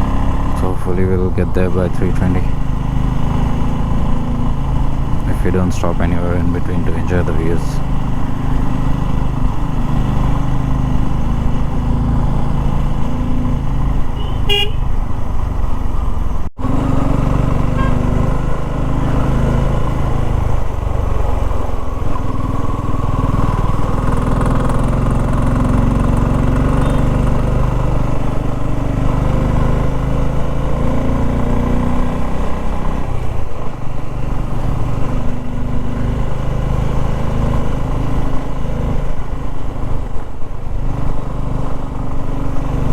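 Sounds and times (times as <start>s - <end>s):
motorcycle engine under load: 0.0s - 42.9s
vehicle horns honking: 14.1s - 15.0s, 17.6s - 18.2s, 26.6s - 27.2s.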